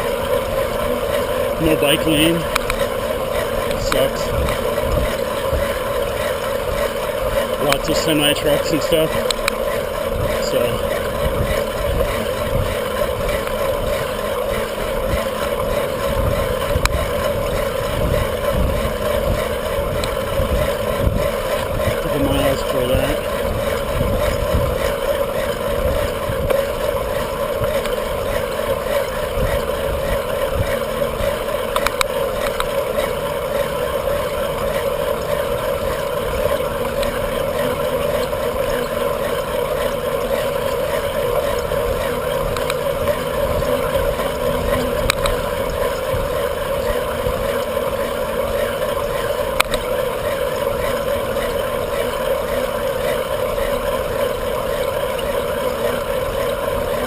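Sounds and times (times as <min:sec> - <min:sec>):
wind and road noise: 0:00.0 - 0:57.0
faint clicks: 0:02.5 - 0:02.9, 0:09.1 - 0:09.8, 0:20.0 - 0:20.2, 0:31.2 - 0:33.4, 0:34.5 - 0:57.0.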